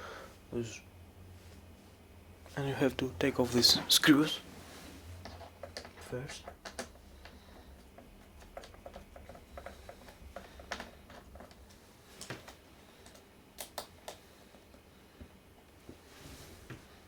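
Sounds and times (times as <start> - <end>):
screwdriver clicks and taps: 12.2 - 14.2.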